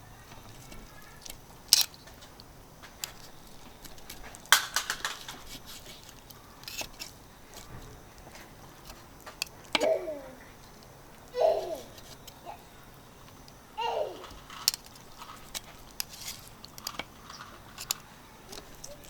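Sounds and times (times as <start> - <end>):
camp cooking gear clinking: 0.5 - 10.0, 14.2 - 19.0.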